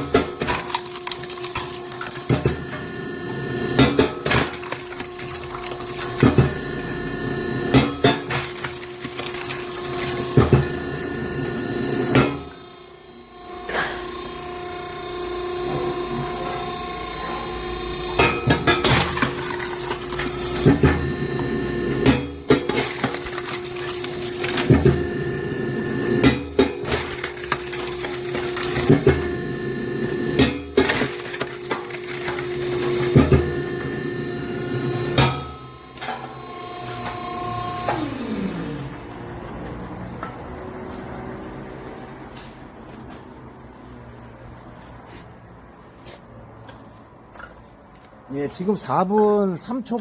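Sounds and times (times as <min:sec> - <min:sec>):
wood splitting cracks: 0:00.0 - 0:02.5, 0:03.8 - 0:06.4, 0:07.7 - 0:10.6, 0:18.2 - 0:21.0, 0:22.0 - 0:25.2, 0:26.2 - 0:29.3, 0:30.4 - 0:33.5
wood pieces falling: 0:00.0 - 0:02.6, 0:03.8 - 0:06.5, 0:07.8 - 0:10.6, 0:18.6 - 0:21.0, 0:22.0 - 0:25.2, 0:26.2 - 0:29.3, 0:30.4 - 0:33.5
hydraulic pump hum: 0:00.0 - 0:42.0.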